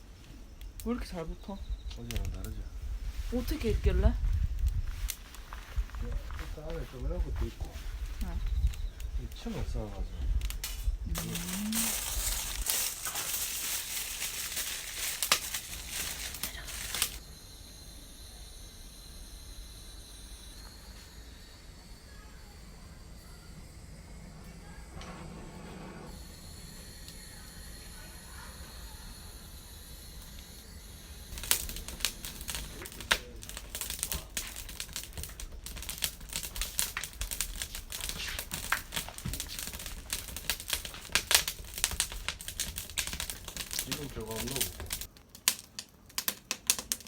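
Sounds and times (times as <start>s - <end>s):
faint steady hiss: 0.0s - 47.0s
campfire crackling and popping: 1.9s - 17.2s, 30.1s - 47.0s
thin high whine: 10.8s - 33.4s.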